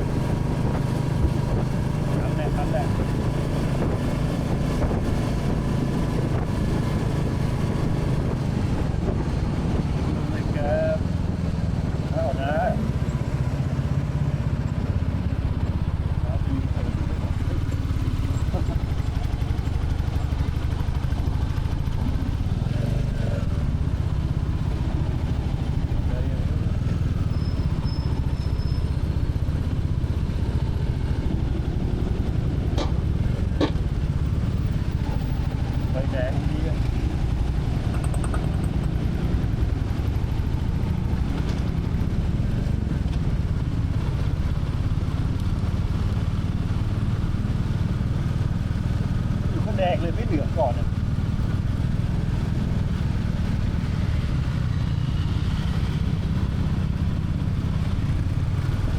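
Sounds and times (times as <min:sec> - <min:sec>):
motorcycle engine idling: 0:05.2 - 0:58.9
motorcycle engine thumping: 0:32.2 - 0:34.3, 0:37.6 - 0:39.2.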